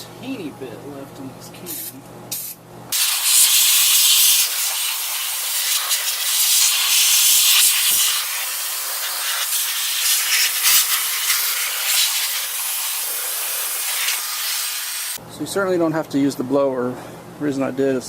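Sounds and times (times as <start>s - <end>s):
aerosol can spraying hiss: 2.3s - 15.2s.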